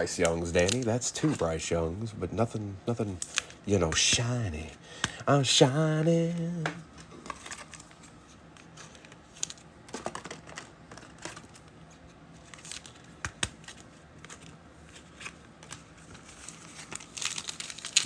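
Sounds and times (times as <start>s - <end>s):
cards and foil wrapper crinkling: 0.0s - 18.0s.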